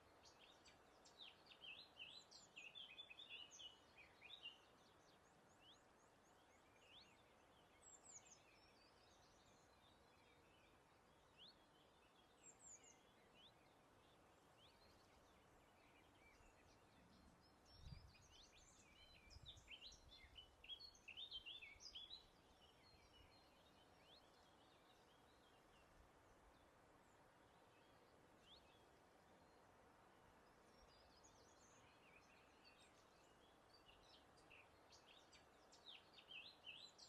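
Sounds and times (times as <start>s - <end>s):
faint breeze hiss: 0.0s - 37.0s.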